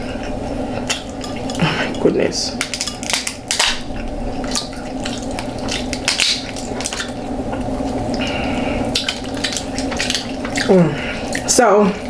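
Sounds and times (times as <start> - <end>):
steady low hum: 0.0 - 12.0
wet chewing and lip-smacking: 2.7 - 11.6.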